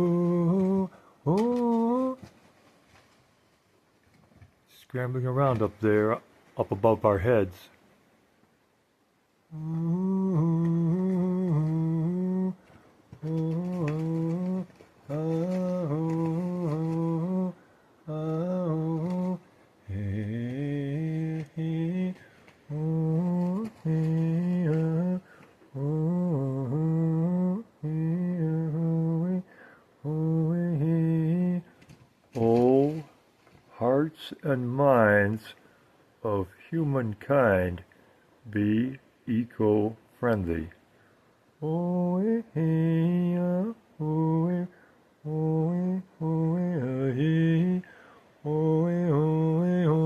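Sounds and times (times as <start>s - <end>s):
man humming a chant-like tune: 0.0s - 2.5s, 9.5s - 31.8s, 32.4s - 33.1s, 41.6s - 50.0s.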